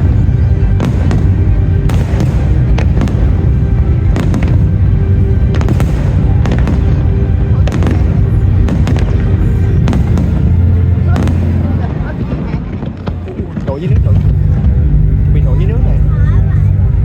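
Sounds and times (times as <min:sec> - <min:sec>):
loud music: 0:00.0 - 0:13.1, 0:13.9 - 0:17.0
fireworks bangs: 0:00.0 - 0:15.7
heavy low rumble: 0:00.0 - 0:17.0.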